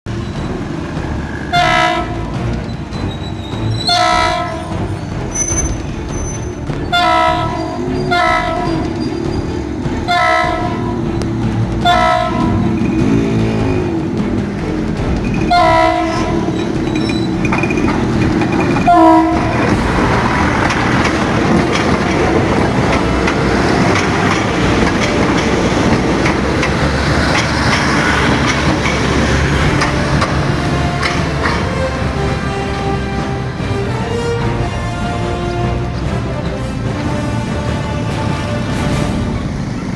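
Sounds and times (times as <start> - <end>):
train engine and wheels passing: 0.0 - 39.9
train horn blasts: 1.4 - 2.5, 3.8 - 9.0, 10.0 - 11.2, 11.8 - 12.7, 15.5 - 16.8, 18.8 - 19.8, 29.6 - 39.4.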